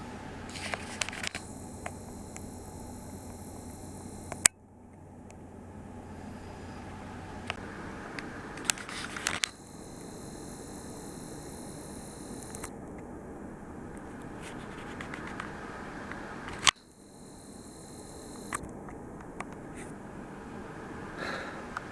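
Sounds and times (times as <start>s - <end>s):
camera clicks: 0.5s - 4.5s, 8.6s - 12.7s, 16.5s - 18.6s
high-pitched camera whine: 0.5s - 4.6s, 8.6s - 18.7s.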